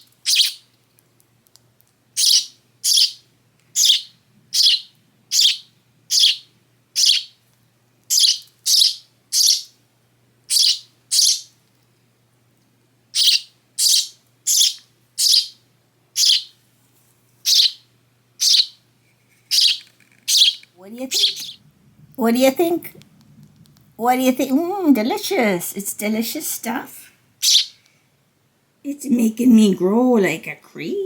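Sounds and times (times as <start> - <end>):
sparrow chirping: 0.0 - 0.7, 2.2 - 7.4, 8.1 - 9.8, 10.5 - 11.6, 13.1 - 15.6, 16.2 - 16.6, 17.4 - 18.8, 19.5 - 21.6, 27.4 - 27.8.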